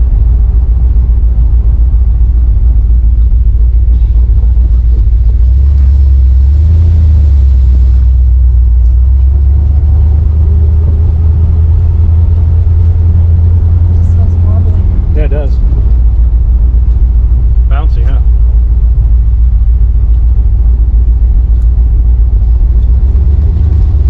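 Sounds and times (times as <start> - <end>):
car engine exhaust rumble: 0.0 - 24.0.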